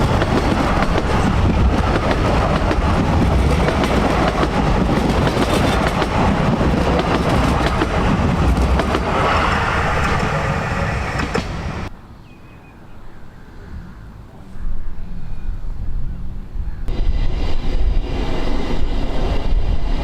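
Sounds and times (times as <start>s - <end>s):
train wheels clattering over rail joints: 0.0s - 9.2s.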